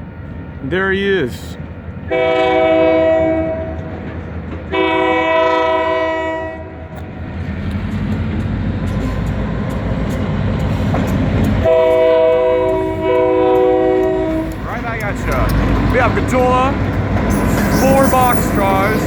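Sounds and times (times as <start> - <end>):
train rumble: 0.0 - 19.0
train horn blasts: 2.1 - 4.0, 4.7 - 7.0, 11.6 - 14.8.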